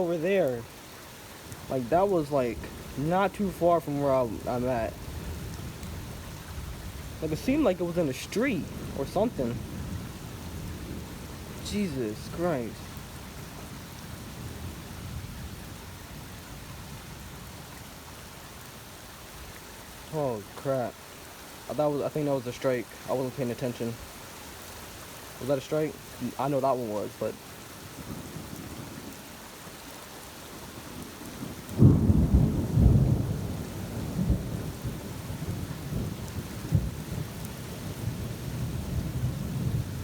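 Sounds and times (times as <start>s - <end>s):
heavy rain: 0.0s - 40.0s
low rumble of thunder: 1.6s - 18.7s, 27.8s - 29.3s, 30.6s - 40.0s
thunder clap rumbling: 31.0s - 40.0s.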